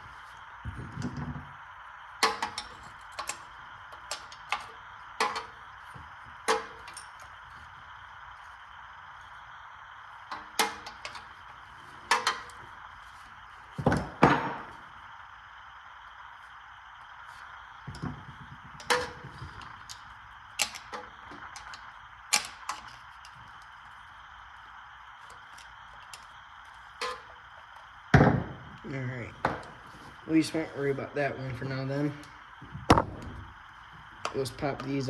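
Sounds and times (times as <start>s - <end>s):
hand tools clanking on metal: 2.2s - 7.3s, 10.3s - 12.7s, 18.7s - 20.0s, 20.6s - 23.4s, 27.0s - 27.4s.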